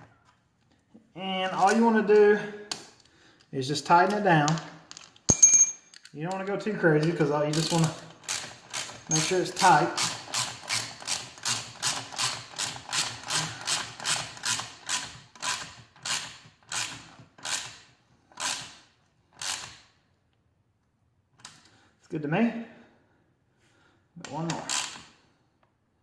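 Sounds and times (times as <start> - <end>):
ratchet wrench clicking: 7.5 - 18.8.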